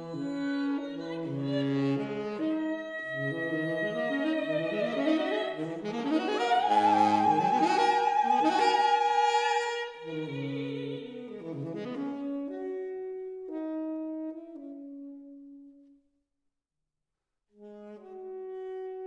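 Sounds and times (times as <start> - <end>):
saxophone holding high note: 1.7 - 11.1.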